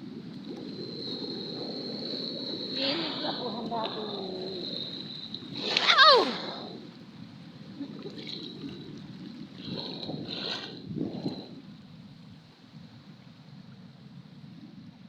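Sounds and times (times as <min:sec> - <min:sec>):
loud wavering cry: 0:05.7 - 0:06.6.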